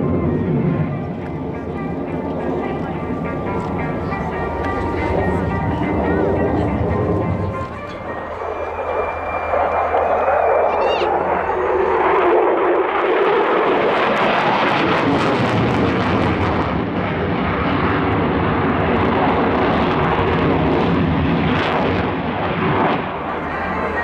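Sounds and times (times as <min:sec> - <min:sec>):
fighter jet engine roar: 0:00.0 - 0:24.0.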